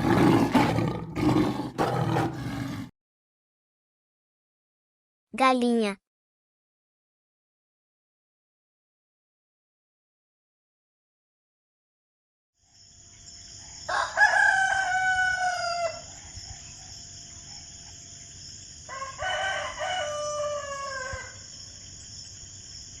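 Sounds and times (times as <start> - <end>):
rooster crowing: 13.7 - 16.2, 18.8 - 21.6.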